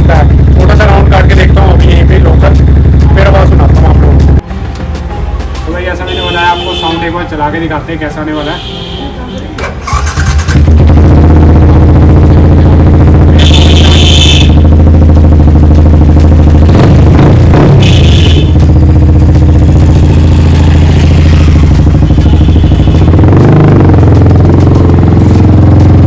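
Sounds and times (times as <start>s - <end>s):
motorcycle engine idling and revving: 0.0s - 4.4s, 9.7s - 26.0s.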